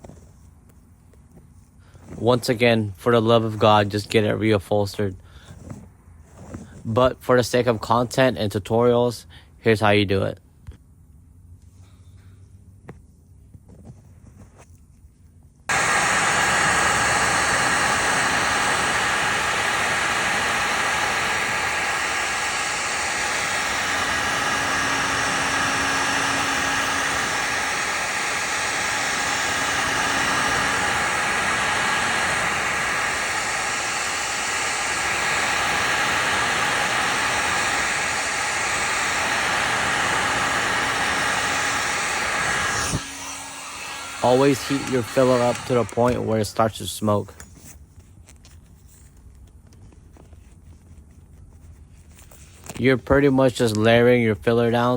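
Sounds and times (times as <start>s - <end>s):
heat gun blowing air: 15.7s - 47.2s.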